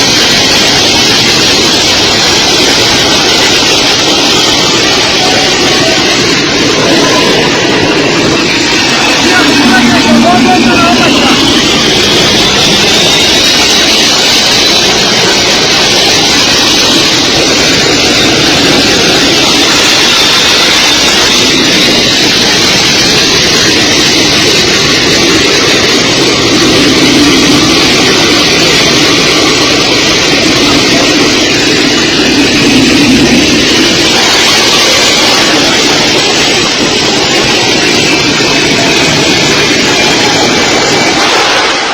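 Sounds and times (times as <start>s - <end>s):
high turbine whine: 0.0s - 41.9s
jet engines roaring: 0.0s - 41.9s.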